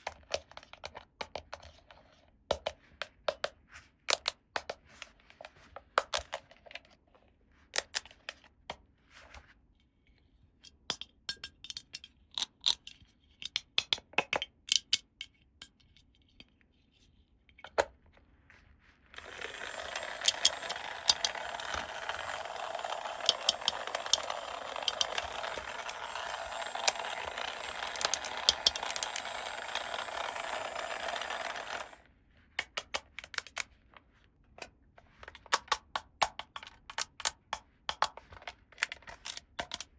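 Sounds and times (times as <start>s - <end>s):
plastic toy pieces clicking: 19.2s - 32.0s, 35.3s - 39.9s.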